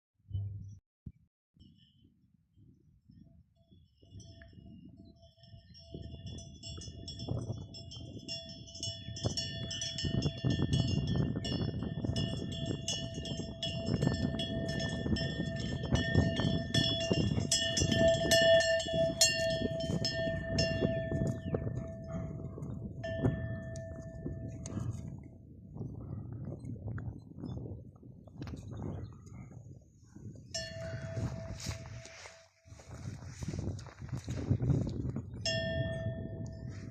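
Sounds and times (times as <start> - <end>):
horse bells clanking: 4.1 - 25.3, 30.3 - 36.9.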